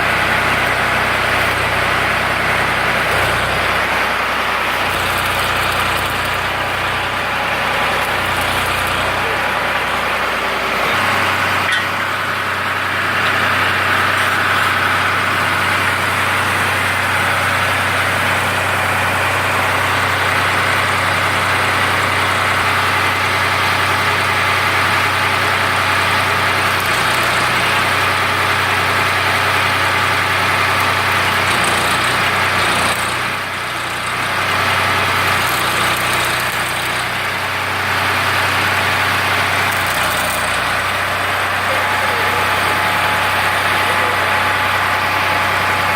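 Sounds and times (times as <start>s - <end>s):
tractor engine running steadily: 0.0s - 45.9s.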